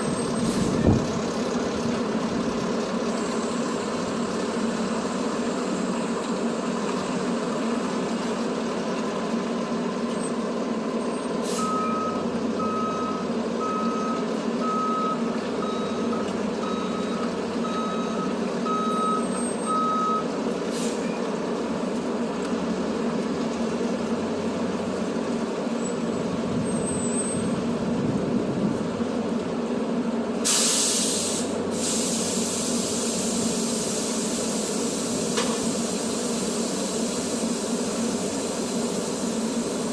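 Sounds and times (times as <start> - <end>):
heavy truck engine running: 0.0 - 39.9
air brake hiss: 11.4 - 11.8, 20.7 - 21.1, 30.4 - 39.9
reversing beeps: 11.6 - 20.3.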